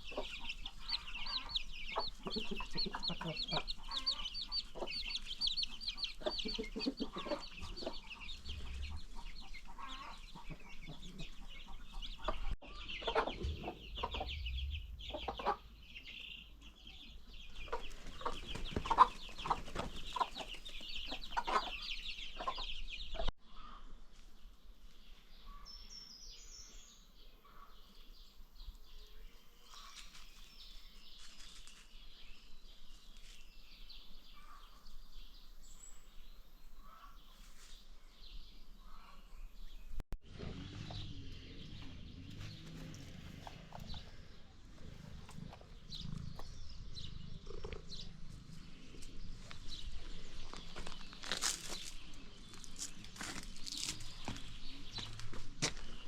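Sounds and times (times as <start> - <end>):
baby chicks cheeping: 0.0 - 23.7, 38.2 - 56.0
chickens clucking: 0.0 - 23.8, 38.8 - 56.0
faint bird calls: 36.8 - 37.4, 40.6 - 49.8.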